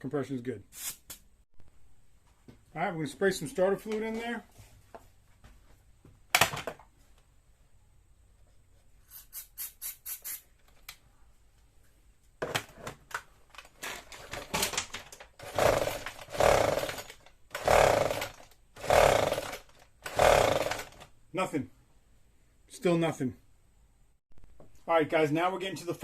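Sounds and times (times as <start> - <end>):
recoil starter pulls: 13.6 - 21.1.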